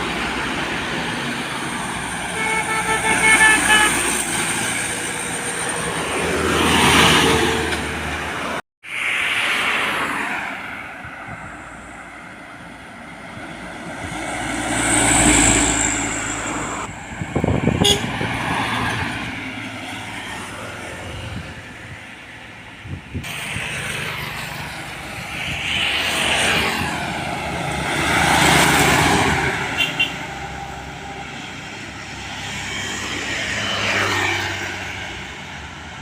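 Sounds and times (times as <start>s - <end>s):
trucks and traffic passing: 0.0s - 36.0s.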